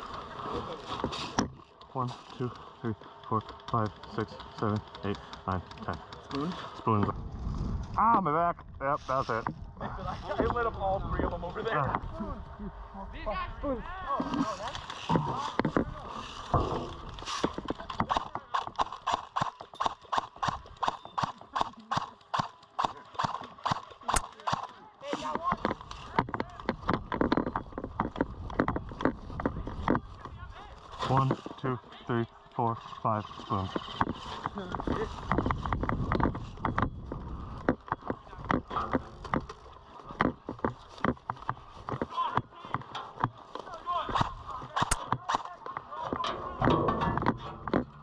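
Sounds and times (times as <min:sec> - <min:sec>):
sharp clicks and knocks: 0:17.4 - 0:24.7, 0:44.2 - 0:45.5.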